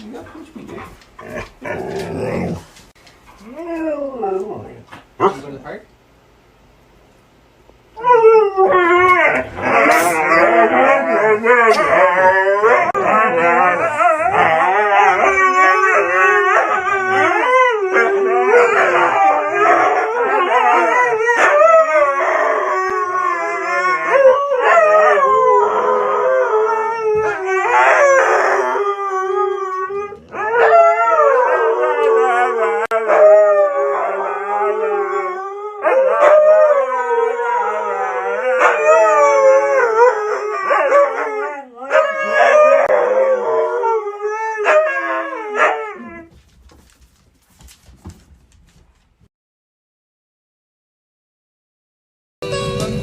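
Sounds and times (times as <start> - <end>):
dog howling: 3.4 - 4.8, 8.0 - 46.3.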